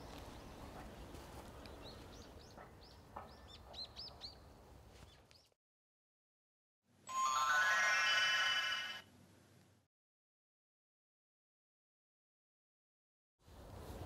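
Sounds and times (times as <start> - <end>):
faint outdoor ambience: 0.0 - 5.6
small bird chirping: 1.6 - 5.6.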